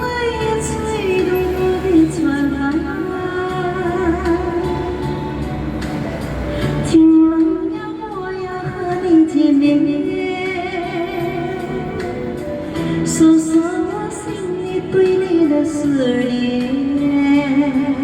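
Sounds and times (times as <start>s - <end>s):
woman singing a ballad: 0.0s - 5.4s, 6.7s - 18.0s.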